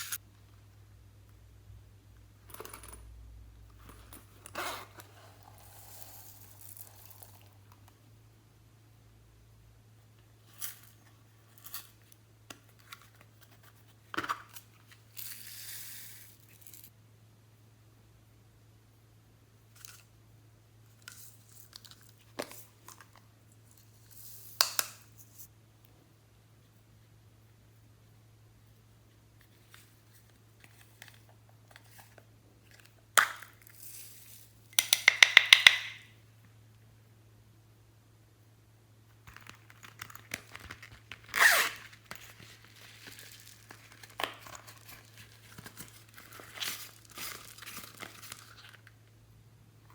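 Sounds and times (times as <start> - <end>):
rustling: 39.3 - 49.0.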